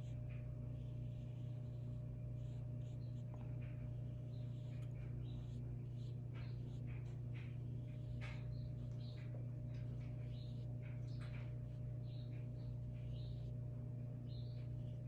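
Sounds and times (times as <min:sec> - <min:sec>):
paintbrush brushing on paper: 0:00.0 - 0:11.5
steady low hum: 0:00.0 - 0:15.0.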